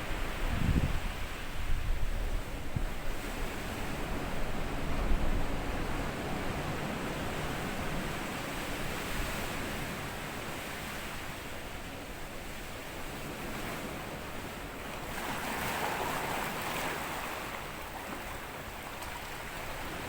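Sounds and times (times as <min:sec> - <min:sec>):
sea waves washing on sandy beach: 0:02.4 - 0:20.0.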